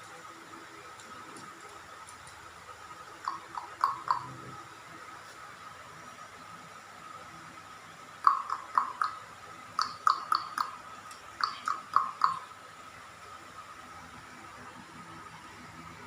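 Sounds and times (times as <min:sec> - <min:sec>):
parrot chirping: 0:03.3 - 0:04.3, 0:09.8 - 0:10.8, 0:11.4 - 0:12.5.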